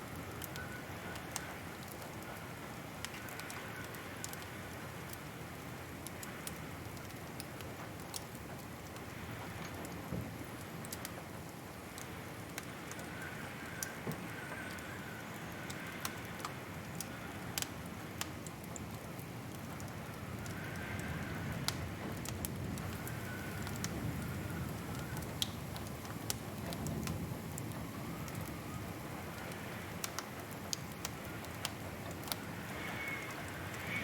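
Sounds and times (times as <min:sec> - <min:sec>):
wood fire crackling and popping: 0:00.1 - 0:34.0
faint wavering whistle: 0:32.4 - 0:34.0.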